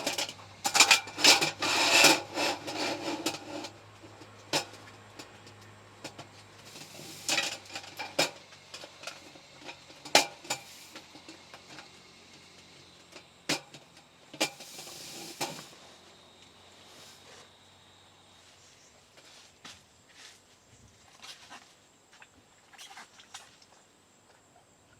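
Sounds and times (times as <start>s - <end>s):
rustling hiss: 6.5s - 13.7s, 14.3s - 17.8s.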